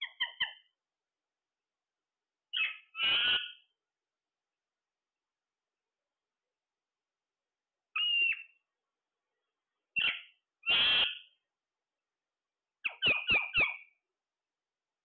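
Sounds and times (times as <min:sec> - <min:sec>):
parrot squawking: 0:00.0 - 0:00.7, 0:02.5 - 0:03.7, 0:10.0 - 0:11.3, 0:12.8 - 0:13.9.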